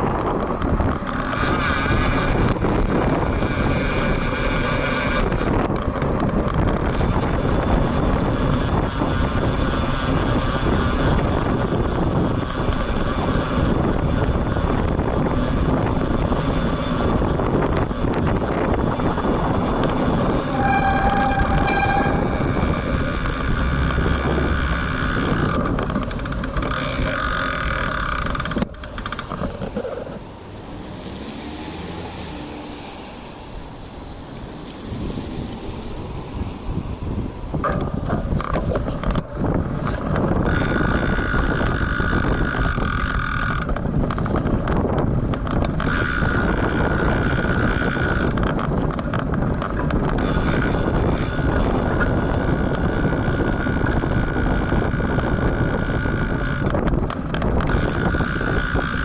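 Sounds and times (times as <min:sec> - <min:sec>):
brief pitched tone: 0:20.4 - 0:24.8
wind buffeting microphone: 0:34.9 - 0:59.0.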